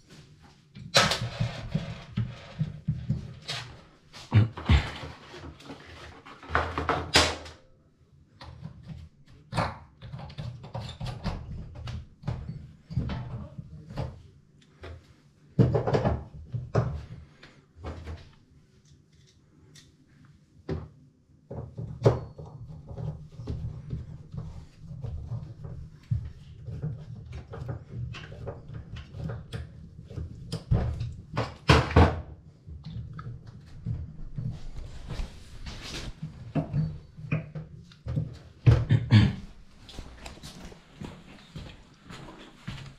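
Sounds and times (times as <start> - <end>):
hard objects knocking and clattering: 15.6 - 17.1.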